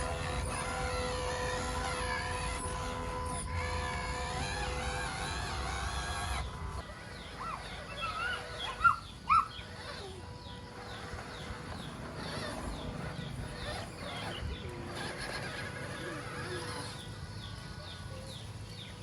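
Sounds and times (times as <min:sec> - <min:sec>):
bird-like chirping calls: 0:00.0 - 0:19.0.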